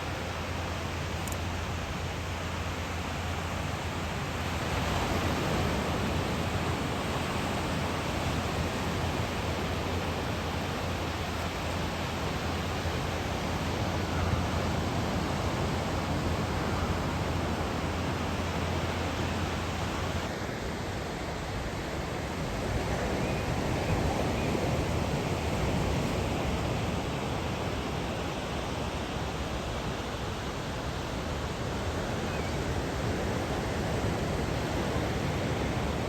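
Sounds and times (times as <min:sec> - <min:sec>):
ocean surf breaking on beach: 0:00.0 - 0:36.0.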